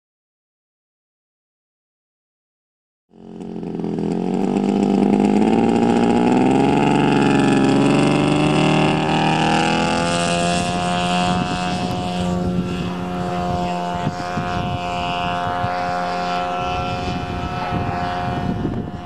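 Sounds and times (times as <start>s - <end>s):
model plane engine in flight: 3.1s - 19.0s.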